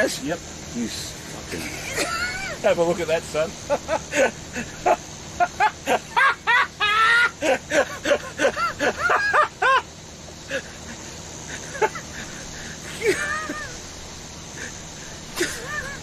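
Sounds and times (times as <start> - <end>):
people laughing hard: 1.5 - 2.6, 3.6 - 9.9, 10.5 - 13.8, 14.6 - 16.0.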